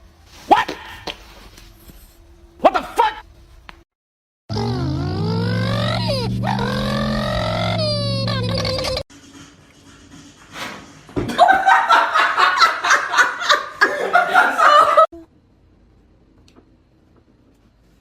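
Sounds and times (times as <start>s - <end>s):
person laughing hard: 11.3s - 15.2s.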